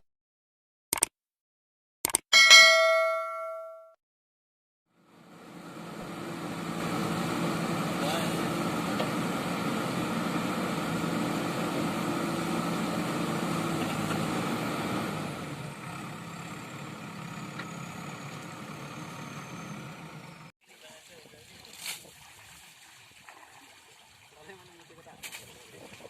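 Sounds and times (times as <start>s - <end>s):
diesel engine idling: 5.0s - 20.5s.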